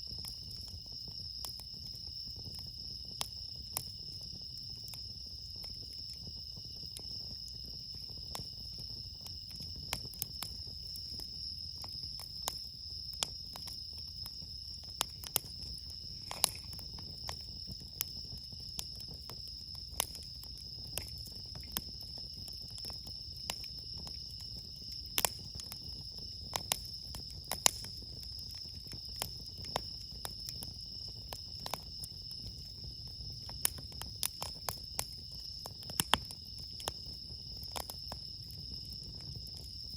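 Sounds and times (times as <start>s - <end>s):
campfire crackling: 0.0s - 39.9s
crickets chirring: 0.0s - 39.9s.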